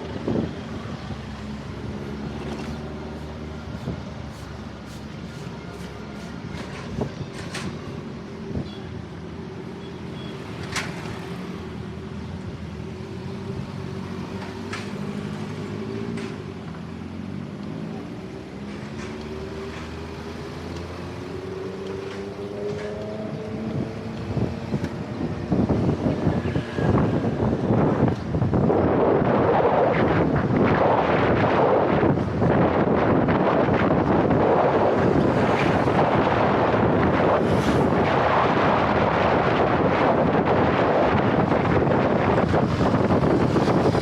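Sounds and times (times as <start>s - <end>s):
wind buffeting microphone: 0.0s - 8.7s, 21.2s - 44.0s.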